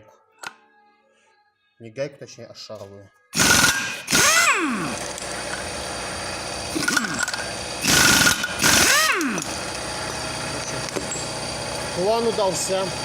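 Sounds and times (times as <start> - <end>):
impact wrench hammering: 3.4 - 11.8
impact wrench whine: 3.4 - 13.0.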